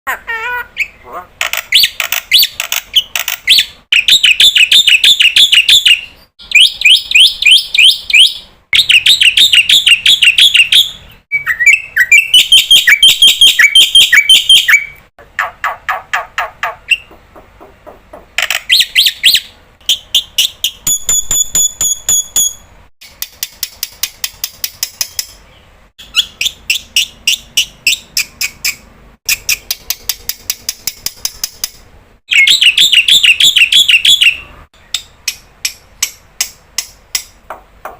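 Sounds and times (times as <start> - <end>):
bird whistled notes: 3.5 - 15.0, 32.3 - 34.5.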